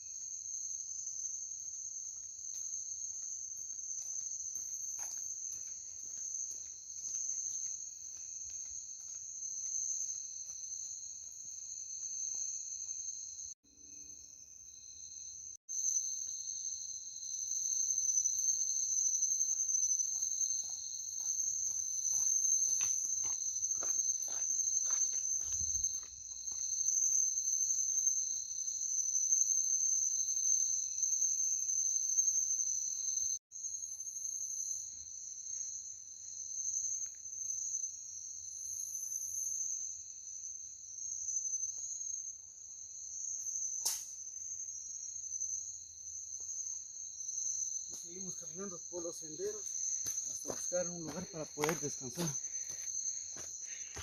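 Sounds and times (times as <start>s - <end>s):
insects chirping: 0.0s - 54.0s.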